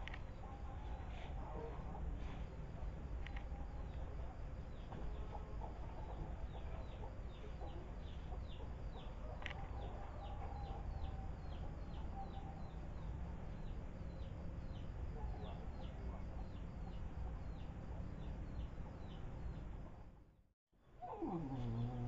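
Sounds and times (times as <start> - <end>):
birds chirping: 21.0 - 22.0.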